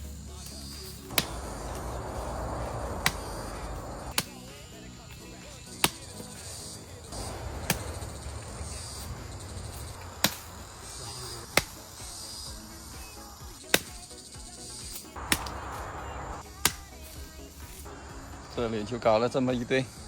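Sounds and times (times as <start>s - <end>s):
insects buzzing: 0.0s - 20.0s
digging tool chopping into earth: 0.9s - 4.4s, 5.1s - 6.4s, 7.1s - 12.4s, 13.0s - 14.2s, 14.9s - 17.9s.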